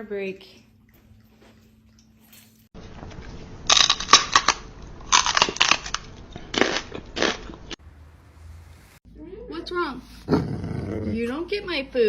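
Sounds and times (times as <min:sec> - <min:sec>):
crunching and crackling: 0:02.8 - 0:07.8.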